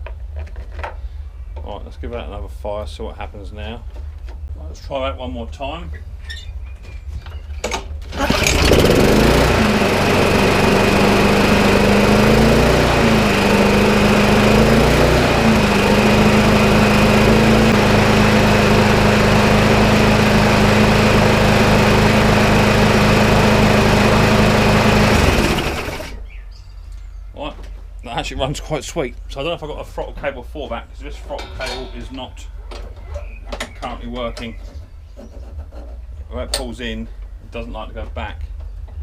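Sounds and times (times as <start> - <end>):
lawnmower engine running: 7.9 - 26.3.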